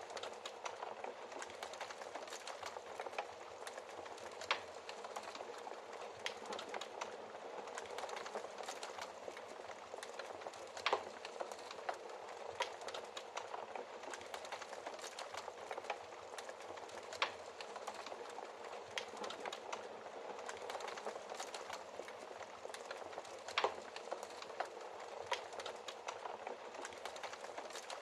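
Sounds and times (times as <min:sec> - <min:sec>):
fire popping: 0:00.0 - 0:28.0
wood fire crackling: 0:00.0 - 0:28.0.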